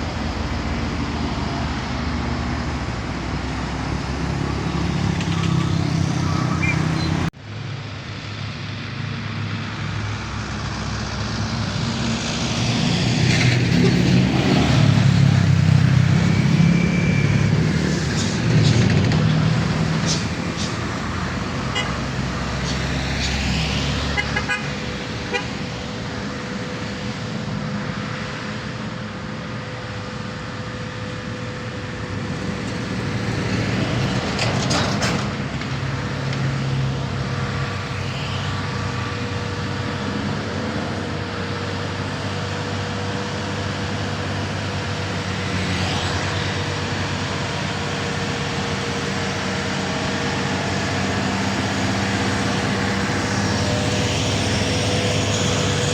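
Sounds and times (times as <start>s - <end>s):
diesel truck engines running: 0.0s - 55.9s
road traffic: 0.0s - 55.9s
vehicle horn tooting: 21.7s - 22.0s, 24.1s - 25.5s.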